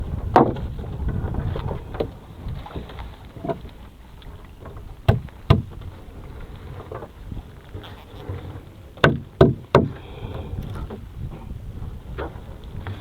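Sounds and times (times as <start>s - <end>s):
wind rumbling on microphone: 0.0s - 13.0s
knocks: 9.0s - 10.0s.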